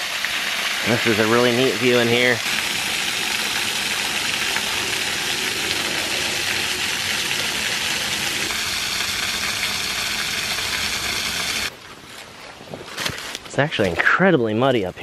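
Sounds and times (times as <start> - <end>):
small waterfall rushing: 0.0 - 11.7.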